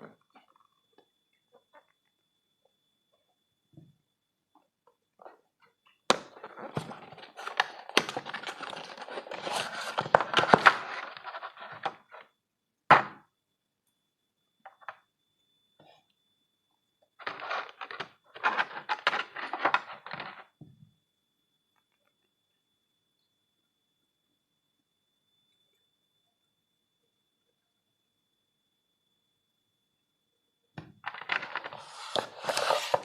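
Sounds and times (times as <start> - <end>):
packaging rustling and crinkling: 6.5 - 12.2, 17.2 - 20.4, 31.1 - 33.0.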